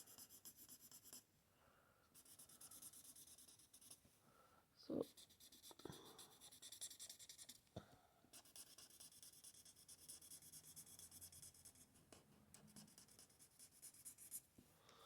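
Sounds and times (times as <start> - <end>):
marker scratching on paper: 0.0 - 1.2, 2.2 - 4.0, 5.0 - 7.6, 8.4 - 14.4.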